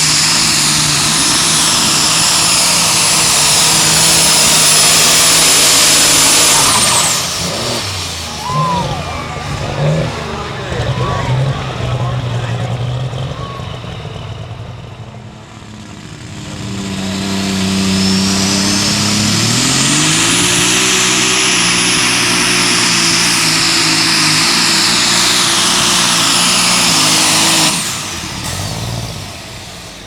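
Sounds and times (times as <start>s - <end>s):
high turbo whine: 0.0s - 30.0s
tractor engine at full throttle: 0.0s - 30.0s.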